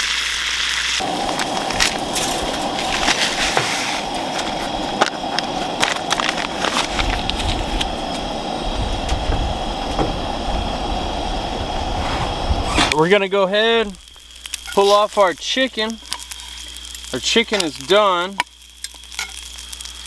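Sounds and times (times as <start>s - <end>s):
chicken sizzling in a skillet: 0.0s - 11.8s, 12.9s - 20.0s
campfire crackles and pops: 0.0s - 20.0s
low rumble: 1.0s - 13.0s.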